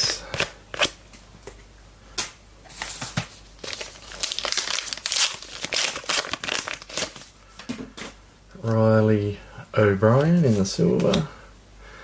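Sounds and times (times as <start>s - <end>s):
card pack wrapper crinkling: 2.8s - 7.3s.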